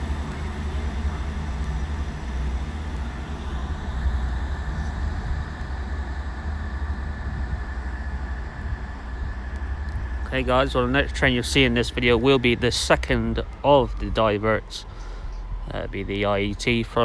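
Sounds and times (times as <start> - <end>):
train engine low rumble: 0.0 - 17.0.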